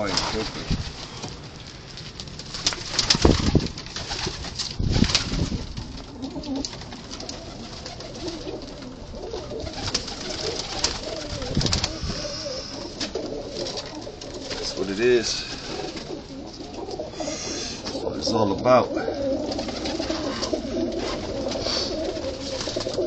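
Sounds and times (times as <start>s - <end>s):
pigeons cooing: 5.3s - 23.0s.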